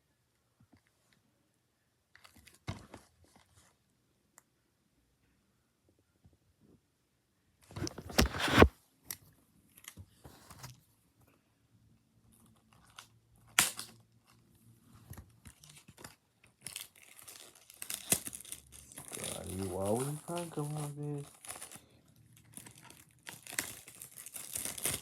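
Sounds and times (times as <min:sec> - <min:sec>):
plastic packaging crinkling: 0:15.5 - 0:25.0.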